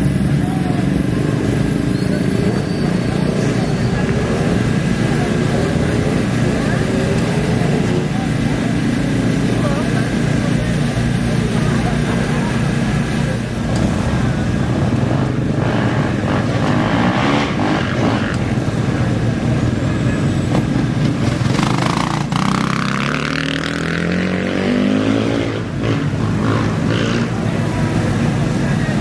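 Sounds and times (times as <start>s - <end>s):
engine accelerating away: 0.0s - 29.0s
racing bike engines revving: 0.0s - 29.0s.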